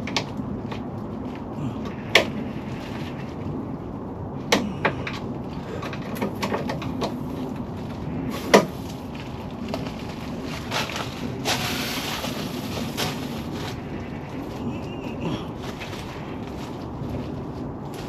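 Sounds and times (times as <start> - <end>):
short rushing hiss: 11.4 - 13.4.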